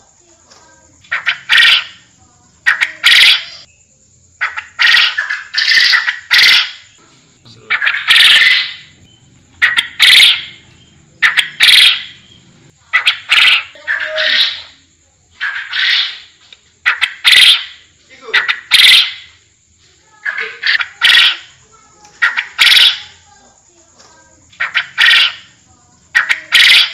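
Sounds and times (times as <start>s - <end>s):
quail calling sharp notes: 1.0s - 3.7s, 4.4s - 7.0s, 7.6s - 14.8s, 15.4s - 19.4s, 20.2s - 23.2s, 24.5s - 26.9s.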